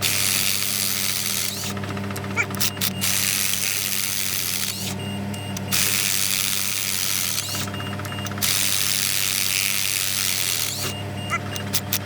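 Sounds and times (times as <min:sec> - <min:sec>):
low mechanical hum: 0:00.0 - 0:12.0
power tool hissing: 0:05.7 - 0:12.0.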